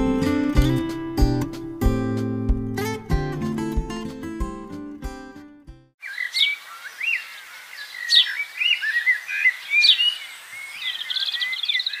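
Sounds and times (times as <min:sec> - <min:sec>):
birds calling: 0:06.0 - 0:12.0
rapid high bird trill: 0:06.0 - 0:12.0
warbling bird chatter: 0:06.0 - 0:12.0.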